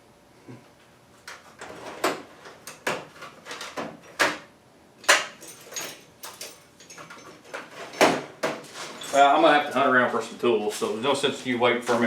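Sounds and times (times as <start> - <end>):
metal tools clattering in drawer: 5.0 - 9.5.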